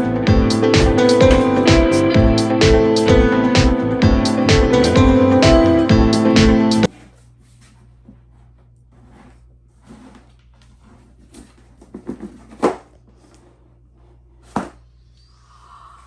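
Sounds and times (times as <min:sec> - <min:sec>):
packaging rustling and scraping: 0:06.9 - 0:14.6.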